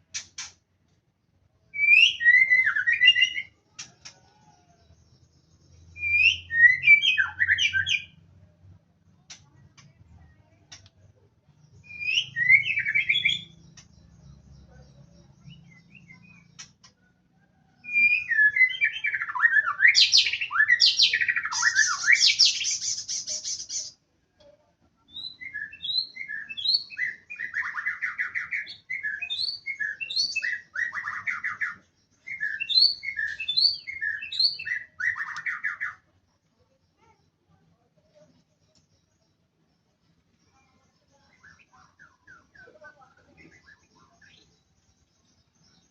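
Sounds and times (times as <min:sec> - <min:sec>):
songbird singing whistles and trills: 0:01.7 - 0:04.4, 0:05.8 - 0:08.2, 0:11.8 - 0:16.7, 0:17.7 - 0:24.0, 0:25.1 - 0:36.1.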